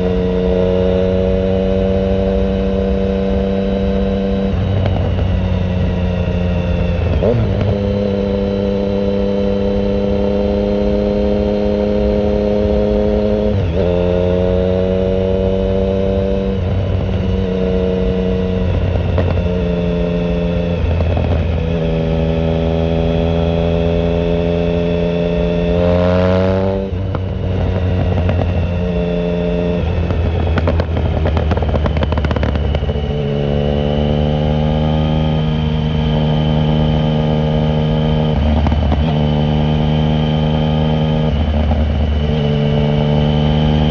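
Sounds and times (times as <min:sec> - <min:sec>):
motorcycle engine revving: 0:00.0 - 0:43.9
exhaust crackle: 0:29.8 - 0:33.3.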